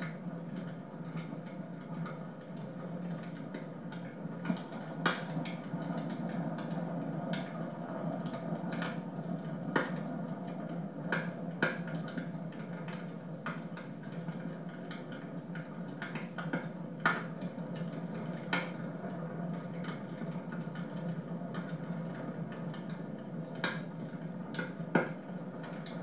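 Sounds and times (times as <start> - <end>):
wood fire pops and snaps: 9.6 - 15.1, 16.0 - 18.8.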